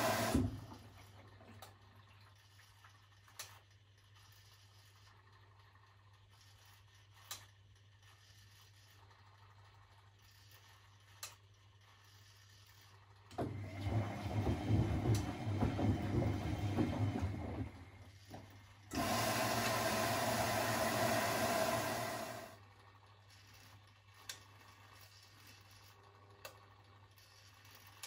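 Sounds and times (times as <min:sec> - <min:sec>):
water rushing into washing machine: 0:00.0 - 0:01.6, 0:13.3 - 0:22.5.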